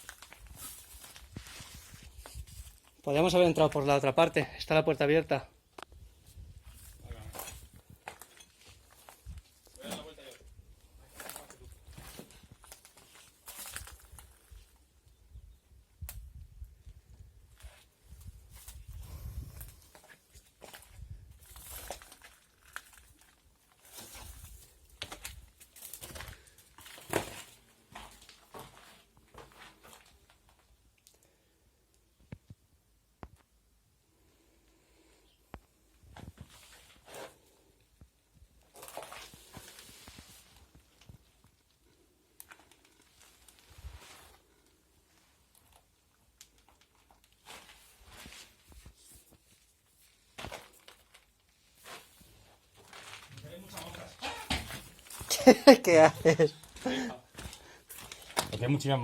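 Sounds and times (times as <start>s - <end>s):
crunching scuffing footsteps: 0.0s - 3.0s, 11.1s - 14.7s, 19.6s - 30.6s.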